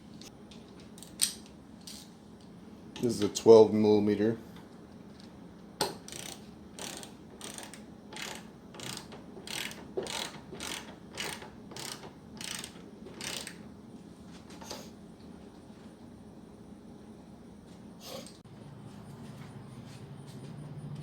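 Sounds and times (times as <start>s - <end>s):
ratchet wrench clicking: 6.0s - 13.6s.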